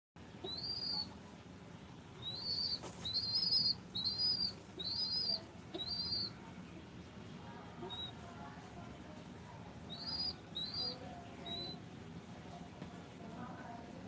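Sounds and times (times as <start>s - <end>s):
bird whistling call: 0.5s - 1.1s, 2.2s - 6.3s, 9.9s - 11.8s.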